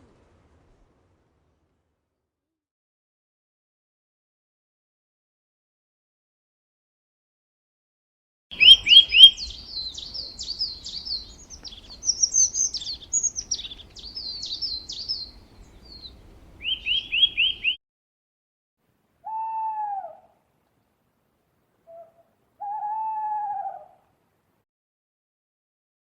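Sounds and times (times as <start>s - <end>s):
lower falling bird call: 8.5s - 17.8s, 19.2s - 20.4s, 21.8s - 24.0s
songbird chirping: 8.5s - 17.8s.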